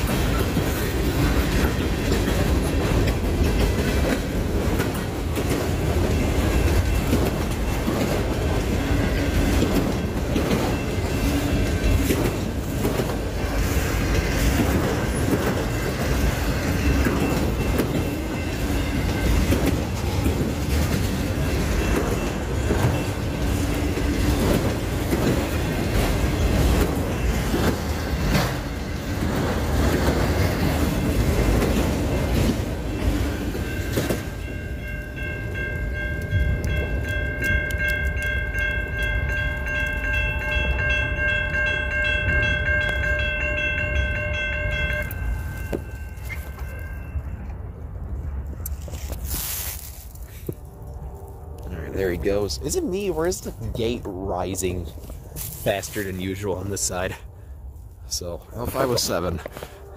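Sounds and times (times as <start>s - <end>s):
wheels clicking over rail joints: 0.0s - 47.6s
freight train rumbling past: 0.0s - 59.9s.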